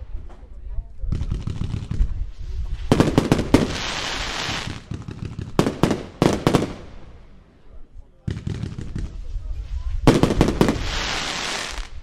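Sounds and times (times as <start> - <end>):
firework bangs: 1.1 - 7.3, 10.0 - 12.0
hiss of burning firework stars: 2.0 - 4.9, 9.1 - 12.0.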